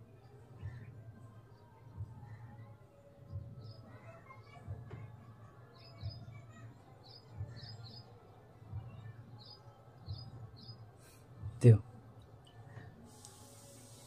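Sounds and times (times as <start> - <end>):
soft low thuds: 3.2 - 3.9, 5.8 - 13.1.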